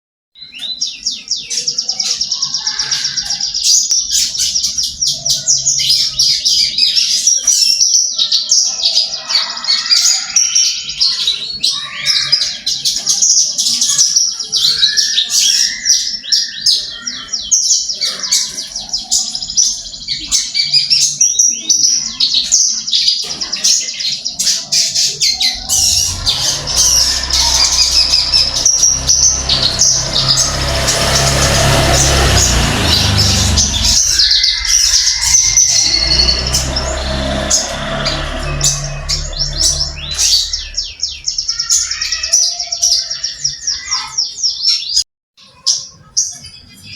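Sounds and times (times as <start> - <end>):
low rumble: 25.5 - 41.6.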